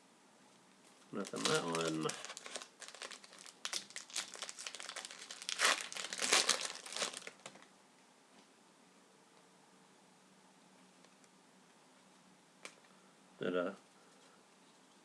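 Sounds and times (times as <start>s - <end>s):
wrapper tearing and crinkling: 1.2s - 7.6s.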